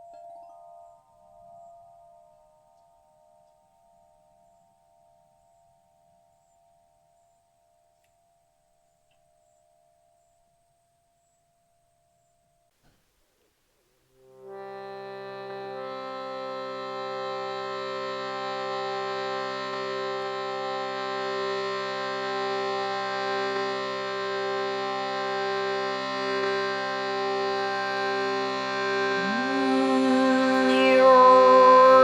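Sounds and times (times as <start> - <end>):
reedy organ-like drone: 14.4 - 32.0
person singing: 15.2 - 32.0.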